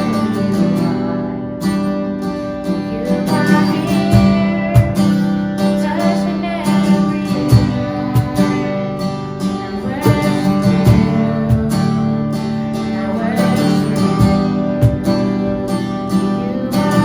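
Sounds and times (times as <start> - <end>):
person singing: 0.0 - 17.0
strummed acoustic guitar: 0.0 - 17.0
drum hits: 14.2 - 15.2.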